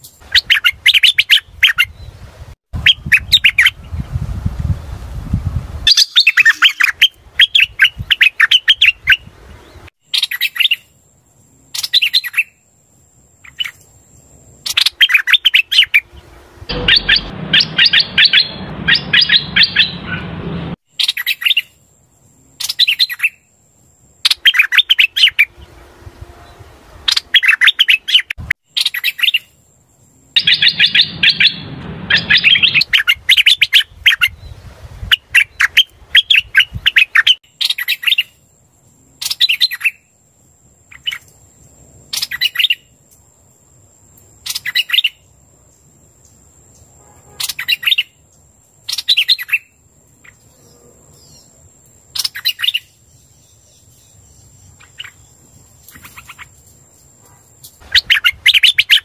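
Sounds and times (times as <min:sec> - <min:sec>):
bird song rapid chattering: 0:05.9 - 0:10.9, 0:14.6 - 0:21.7, 0:30.4 - 0:34.5, 0:51.2 - 0:56.6, 0:57.6 - 0:59.0.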